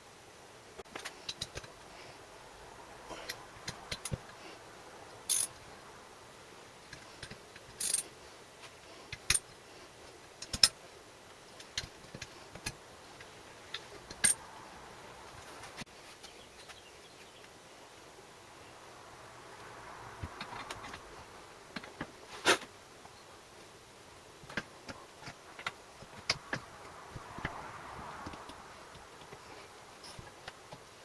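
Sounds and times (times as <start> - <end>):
metallic clicks of hand tools: 3.2 - 4.2, 5.3 - 5.6, 6.9 - 8.1, 10.4 - 10.8, 13.7 - 14.4.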